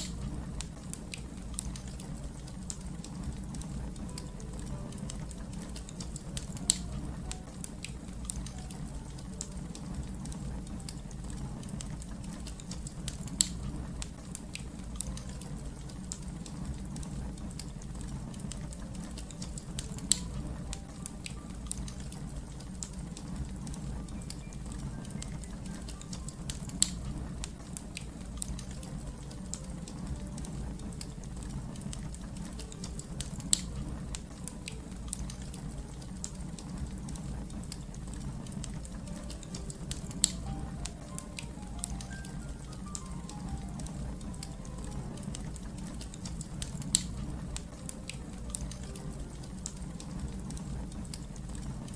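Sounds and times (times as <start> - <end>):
low rumble of burning fire: 0.0 - 51.9
wood fire crackling: 0.0 - 51.9
sharp fire pops: 25.7 - 28.7.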